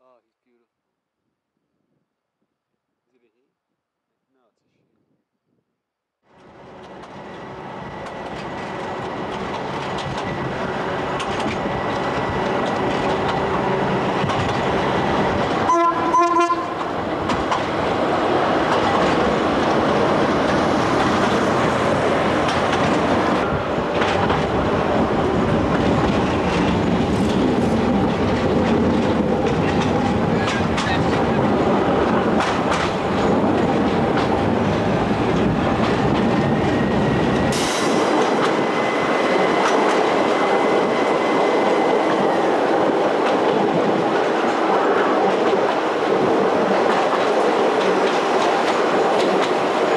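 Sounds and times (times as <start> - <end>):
train running on rails: 6.3 - 49.9
wheels clacking over rail joints: 8.0 - 38.7, 45.2 - 49.9
train horn: 15.7 - 16.9.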